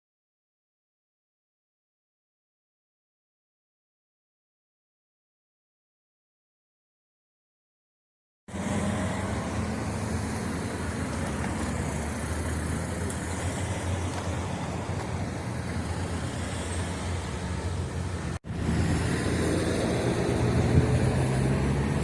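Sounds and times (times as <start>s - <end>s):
car engine hum: 8.5s - 22.0s
tyre road noise: 8.5s - 22.0s.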